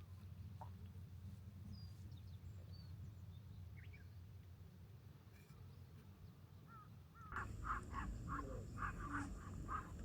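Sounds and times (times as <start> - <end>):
faint low outdoor rumble: 0.0 - 10.0
bird chirp: 1.7 - 4.3.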